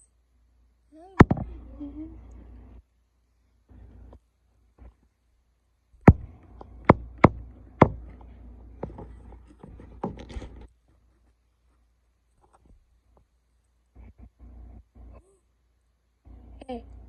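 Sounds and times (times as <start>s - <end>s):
sharp knocks: 6.0s - 8.1s.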